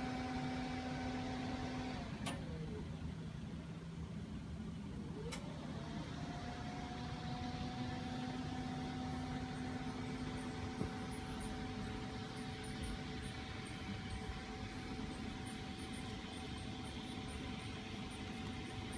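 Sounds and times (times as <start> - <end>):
steady motor hum: 0.0 - 18.9
faint high chirps: 9.1 - 18.9.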